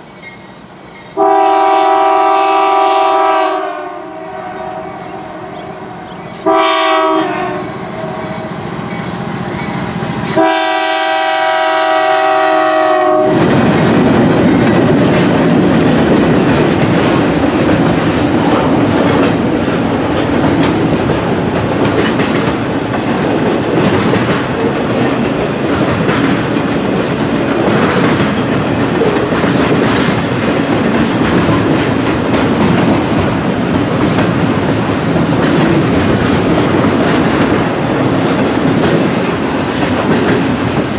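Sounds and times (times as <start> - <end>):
freight train rumbling past: 0.0 - 40.9
locomotive air horn blasts: 1.2 - 8.6, 10.4 - 13.4
rail clatter: 5.8 - 40.9.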